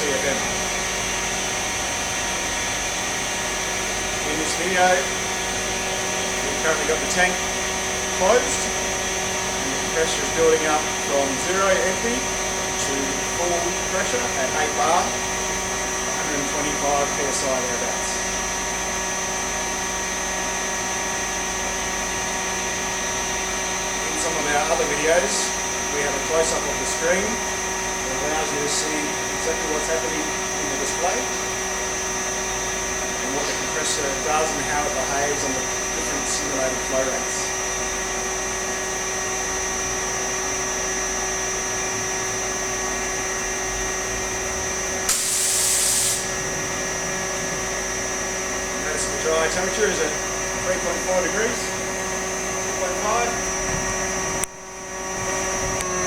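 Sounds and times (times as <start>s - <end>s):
air compressor running: 0.0s - 56.0s
high-pitched whine: 39.0s - 56.0s
air hissing: 45.1s - 46.4s.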